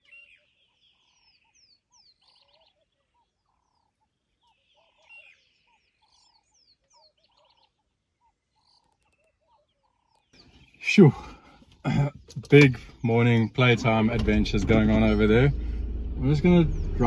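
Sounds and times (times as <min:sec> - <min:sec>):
wild birds calling: 0:08.6 - 0:17.0.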